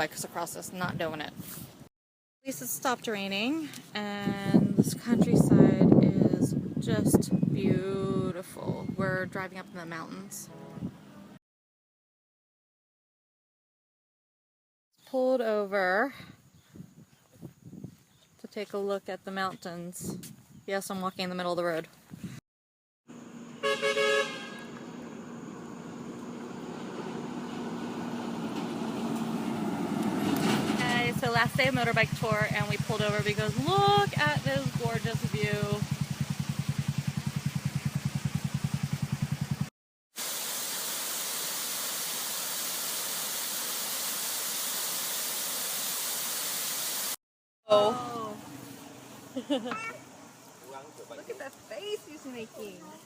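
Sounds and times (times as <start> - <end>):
road noise: 23.1 - 39.7, 48.0 - 53.0
vehicle engine: 23.1 - 39.7
vehicle horn beeps: 23.6 - 24.9
steady hiss: 40.2 - 47.2.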